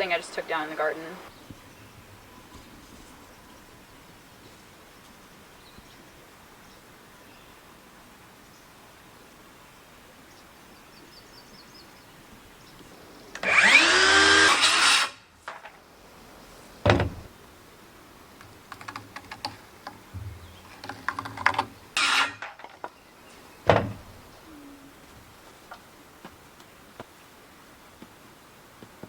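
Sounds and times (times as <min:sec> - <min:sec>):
power drill whining: 0:13.4 - 0:15.2, 0:22.0 - 0:22.4
small clicks: 0:18.4 - 0:20.0
wooden knock: 0:20.2 - 0:21.6.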